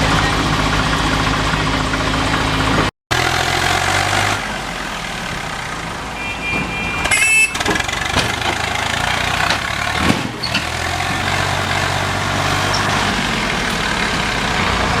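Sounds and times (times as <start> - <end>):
diesel tractor engine running: 0.0 - 15.0.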